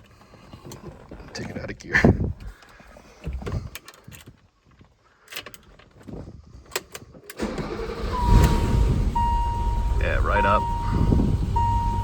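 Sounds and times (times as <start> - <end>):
car engine cranking and starting: 7.3 - 12.0
steady high tone: 8.1 - 12.0.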